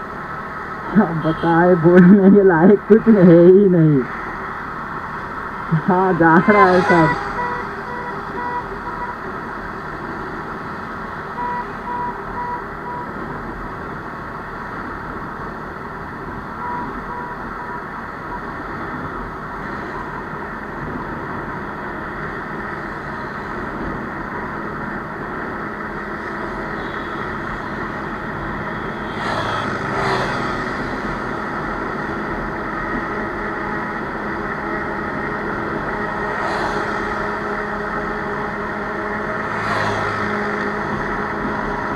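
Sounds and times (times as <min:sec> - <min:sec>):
vehicle engines moving off: 0:00.0 - 0:13.8, 0:15.9 - 0:41.9
short beeping tone: 0:06.5 - 0:09.2, 0:11.4 - 0:13.1, 0:16.6 - 0:18.4.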